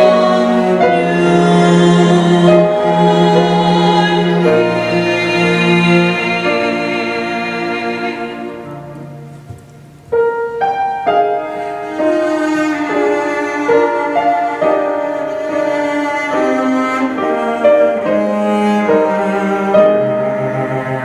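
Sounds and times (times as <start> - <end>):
slow piano and strings music: 0.0 - 21.0.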